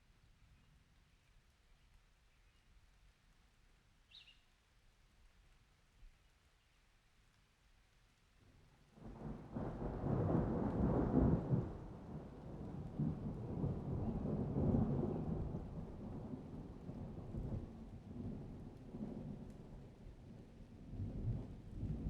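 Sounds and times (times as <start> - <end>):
rolling thunder: 9.0 - 19.5.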